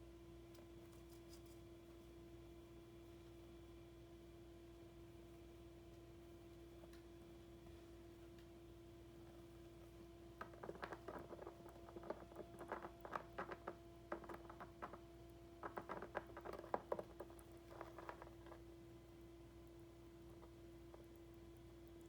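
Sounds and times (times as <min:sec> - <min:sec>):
hamster nibbling: 0:09.2 - 0:22.0.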